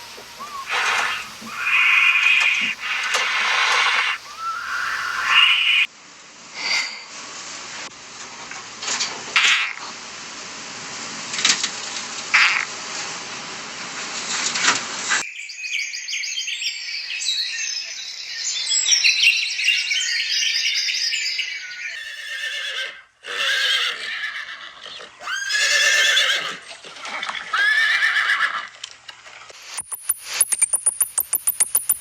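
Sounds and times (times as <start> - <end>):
high wavering animal cries: 0.0 - 5.9, 21.4 - 26.6, 27.5 - 28.7.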